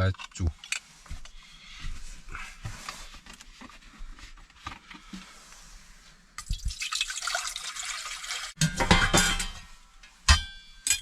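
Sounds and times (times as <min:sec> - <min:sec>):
water pouring into a pot: 0:06.4 - 0:08.6.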